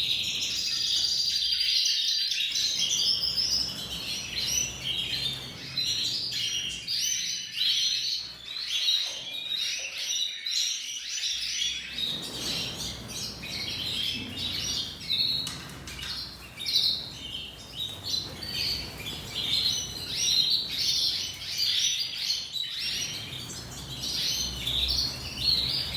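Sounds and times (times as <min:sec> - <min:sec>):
canary singing: 0:02.5 - 0:08.9, 0:11.6 - 0:25.9.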